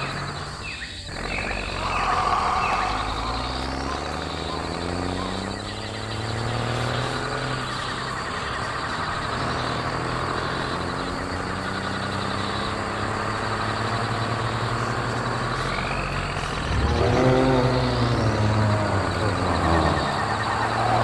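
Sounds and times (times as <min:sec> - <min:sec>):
cartoon truck engine: 0:00.0 - 0:21.0.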